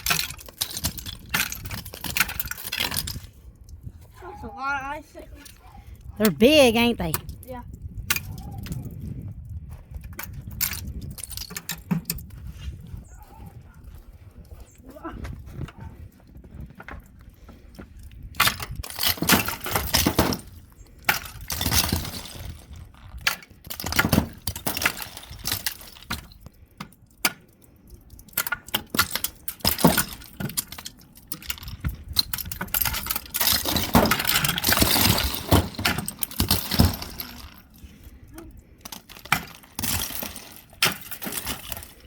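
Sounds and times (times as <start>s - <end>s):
icicles smashing: 28.0s - 37.8s, 38.8s - 42.0s.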